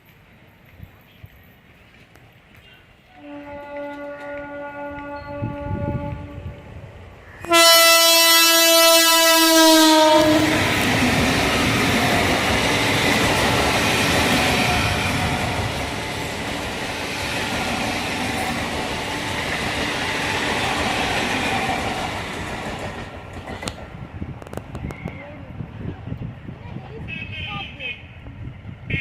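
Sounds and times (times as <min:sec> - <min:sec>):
train wheels rumbling on rails: 0:00.0 - 0:27.1
train horn: 0:03.1 - 0:06.7, 0:07.4 - 0:10.8.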